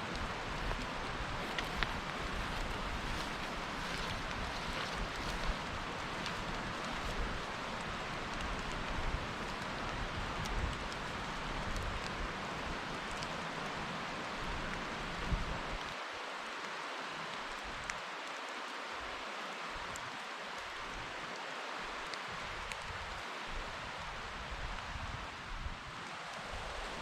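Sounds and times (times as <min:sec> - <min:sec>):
close raindrops ticking: 0:00.0 - 0:15.9
rain falling in woodland: 0:00.0 - 0:27.0.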